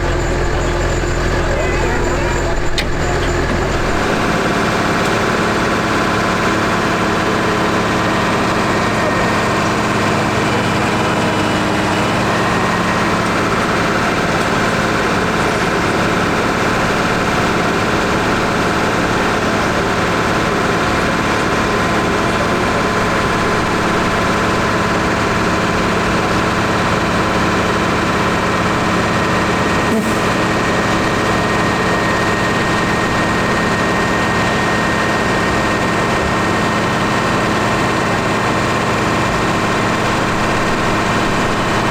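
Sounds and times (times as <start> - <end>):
steady whine: 0.0 - 6.2
tractor engine running: 0.0 - 41.9.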